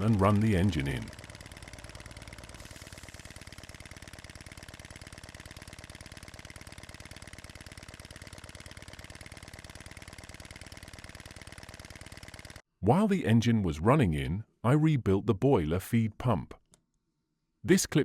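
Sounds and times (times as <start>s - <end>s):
steam engine exhaust puffs: 0.0s - 12.5s.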